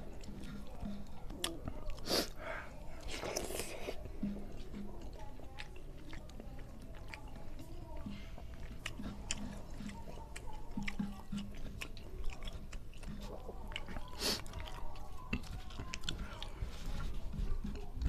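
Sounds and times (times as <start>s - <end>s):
man chewing with wet smacks: 0.0s - 18.0s.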